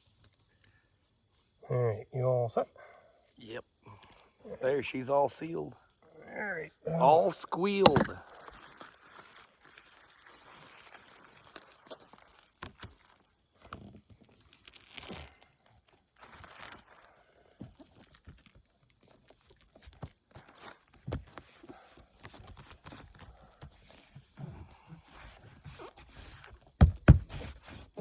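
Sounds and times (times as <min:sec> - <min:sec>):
knocks and scuffs on a roof: 0:07.8 - 0:08.2, 0:17.6 - 0:28.0.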